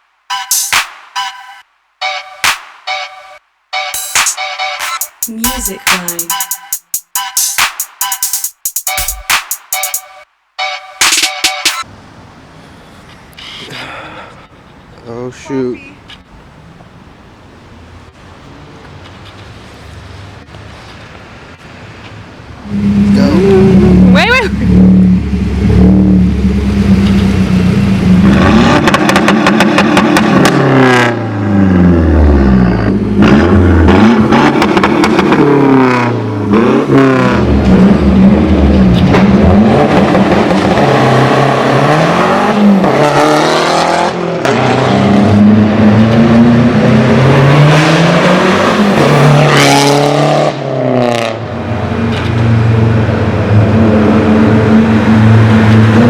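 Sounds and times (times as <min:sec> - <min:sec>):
car engine accelerating through gears: 0:22.6 - 0:56.0.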